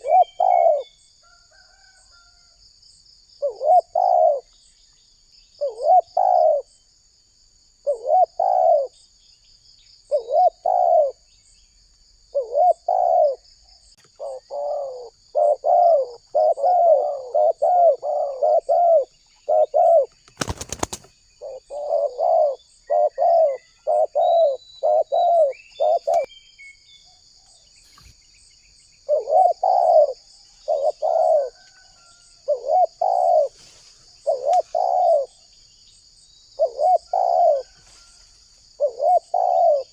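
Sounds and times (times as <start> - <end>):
dove cooing: 0.0 - 2.0, 3.4 - 4.6, 5.6 - 6.7, 7.8 - 9.0, 10.1 - 11.3, 12.3 - 13.4, 14.0 - 26.3, 29.0 - 35.4, 36.6 - 38.0, 38.7 - 39.9
high insect trill: 0.0 - 39.9.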